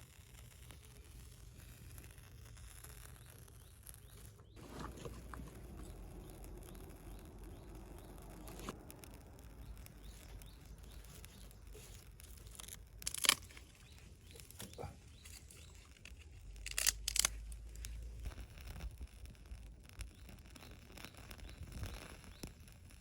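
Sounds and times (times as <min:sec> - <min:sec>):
tearing rustling sounds: 0:09.8 - 0:19.2.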